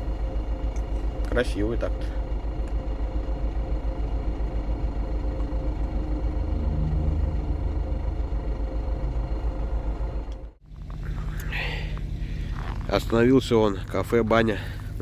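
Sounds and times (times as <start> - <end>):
diesel truck engine rumble: 0.0 - 15.0
road noise: 2.5 - 12.9.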